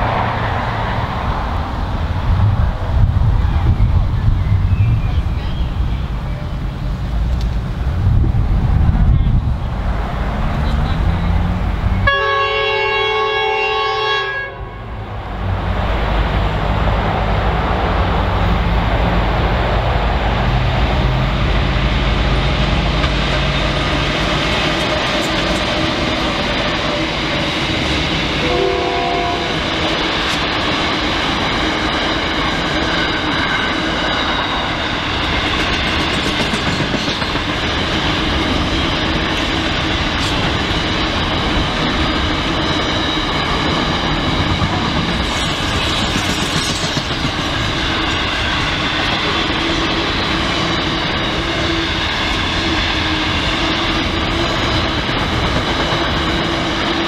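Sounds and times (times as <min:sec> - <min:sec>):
train wheels rumbling and clattering: 0:00.0 - 0:12.2, 0:15.0 - 0:57.0
locomotive horn: 0:12.0 - 0:15.0, 0:28.4 - 0:29.7.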